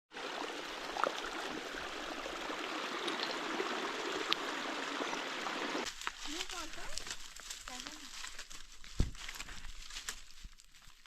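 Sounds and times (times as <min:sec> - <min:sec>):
water plinks and gurgles: 0:00.1 - 0:05.8
running water rushing: 0:00.1 - 0:07.0.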